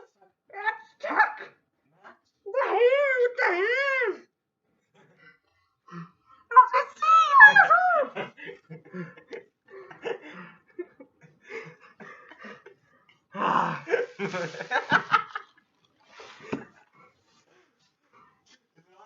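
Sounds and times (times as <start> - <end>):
breathing: 5.0 - 6.5, 8.4 - 10.8, 11.4 - 13.3, 16.0 - 18.4
laughter: 8.0 - 12.9, 13.9 - 15.6.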